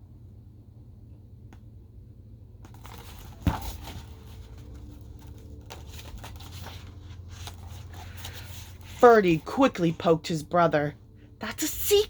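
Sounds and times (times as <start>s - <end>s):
paper rustling: 2.7s - 9.5s.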